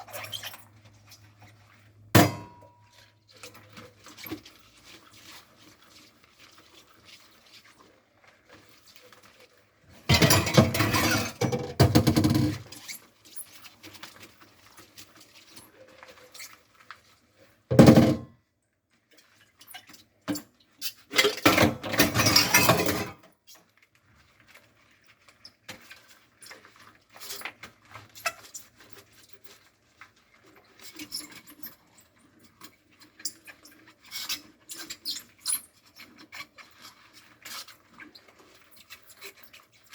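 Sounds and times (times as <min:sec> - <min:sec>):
dishes and cutlery clinking: 0:02.2 - 0:02.8, 0:10.1 - 0:12.3
scrubber rubbing dishes: 0:09.9 - 0:12.9
loud splash or clatter: 0:10.1 - 0:12.7.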